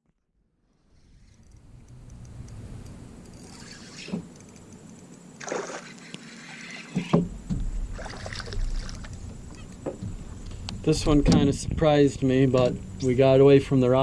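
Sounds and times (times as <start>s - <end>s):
water splashing against boat: 5.4s - 9.2s.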